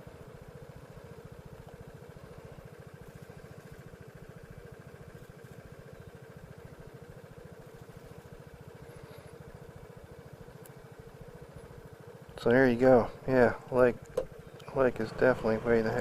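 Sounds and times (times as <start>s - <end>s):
scooter engine running: 0.0s - 16.0s.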